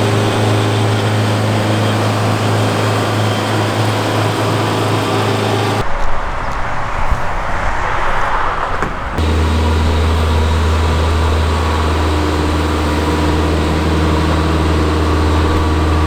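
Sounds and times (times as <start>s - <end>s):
engine running steadily: 0.0s - 5.8s, 9.1s - 16.0s.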